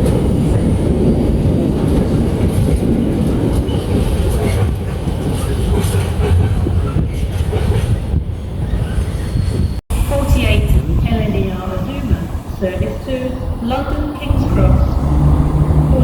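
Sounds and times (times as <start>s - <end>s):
train rumbling: 0.0s - 16.0s
wheels clattering over rails: 14.2s - 16.0s.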